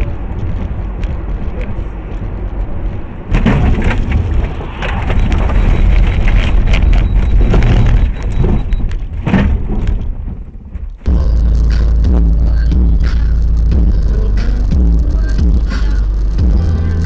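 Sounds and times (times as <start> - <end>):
music with deep beat: 0.0 - 4.5, 11.1 - 17.0
vehicle crash crunching: 0.0 - 17.0.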